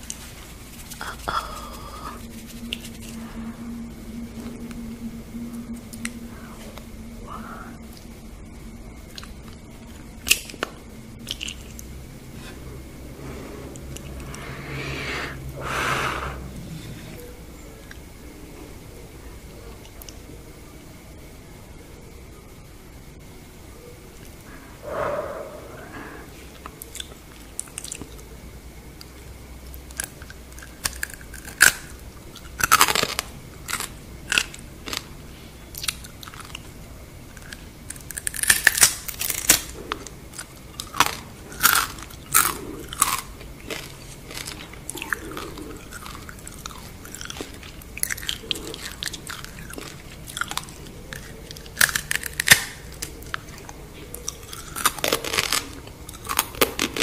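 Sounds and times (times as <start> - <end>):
soft chewing: 35.7 - 57.0
crisp crunching of shells: 37.4 - 39.7, 40.4 - 53.5.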